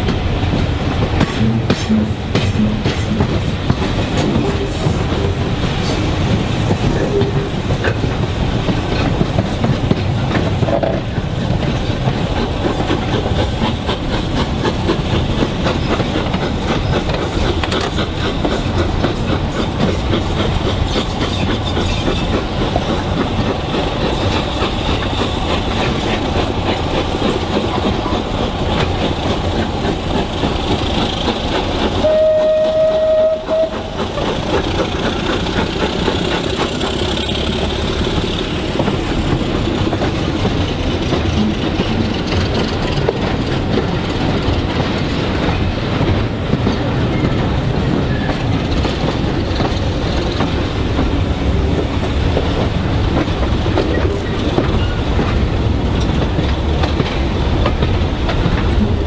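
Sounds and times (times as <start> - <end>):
train wheels clicking over rail joints: 0.0 - 59.0
train whistle: 32.0 - 34.0.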